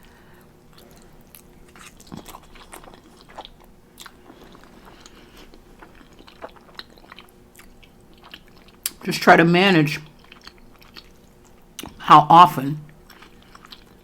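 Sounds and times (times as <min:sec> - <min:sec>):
person chewing noodles: 0:00.0 - 0:09.0, 0:10.1 - 0:12.1, 0:12.8 - 0:14.0.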